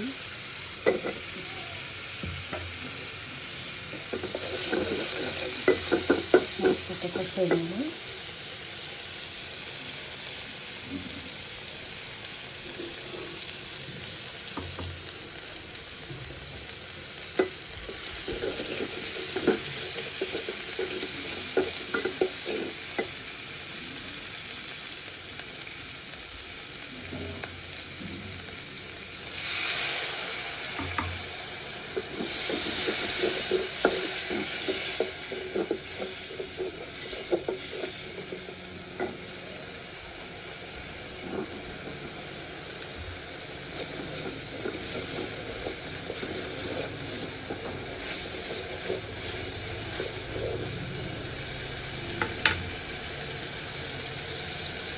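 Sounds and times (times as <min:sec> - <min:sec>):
oil sizzling in a pot: 0:00.0 - 0:54.9
wooden spatula scraping a pot: 0:03.9 - 0:07.7, 0:17.2 - 0:23.2, 0:29.4 - 0:39.7, 0:41.0 - 0:51.0.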